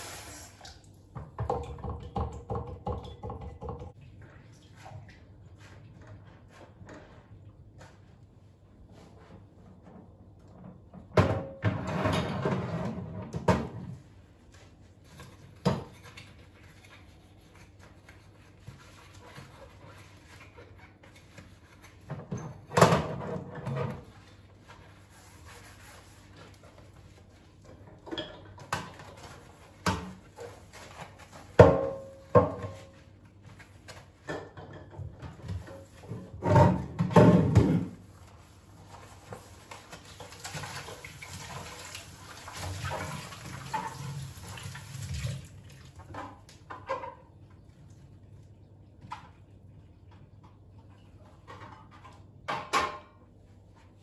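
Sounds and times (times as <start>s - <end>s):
kitchen items knocking and clunking: 1.1s - 4.0s, 10.0s - 14.0s, 22.0s - 24.2s, 27.8s - 33.0s, 34.1s - 38.1s, 51.3s - 53.2s.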